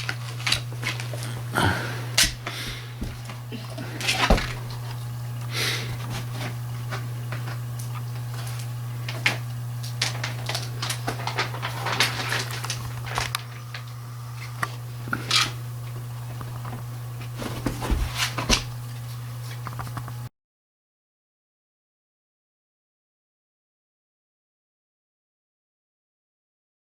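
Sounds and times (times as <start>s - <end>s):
steady low hum: 0.0s - 20.3s.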